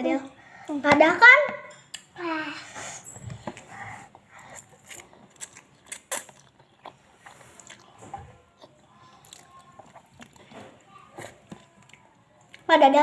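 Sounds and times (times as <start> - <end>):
chewing and biting: 4.3 - 12.6.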